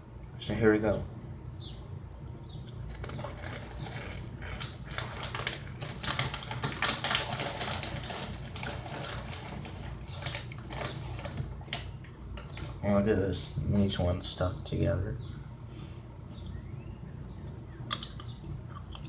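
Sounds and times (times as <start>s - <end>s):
chewing crunchy corn chip: 17.0s - 19.0s.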